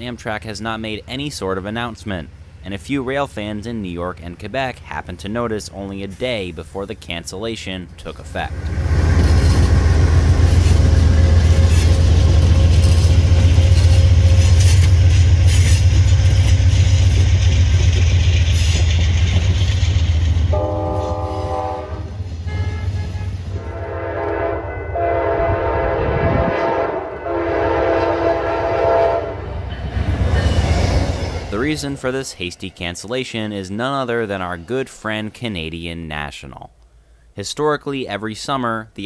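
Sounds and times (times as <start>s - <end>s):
passenger coaches rumbling past: 8.2s - 33.0s
locomotive horn blasts: 20.5s - 29.5s.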